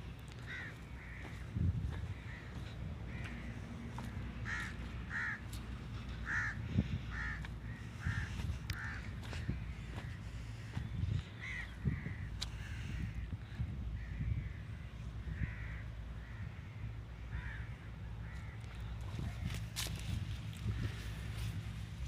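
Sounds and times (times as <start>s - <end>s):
low steady rumble: 0.0s - 22.0s
bird calling: 0.3s - 19.7s.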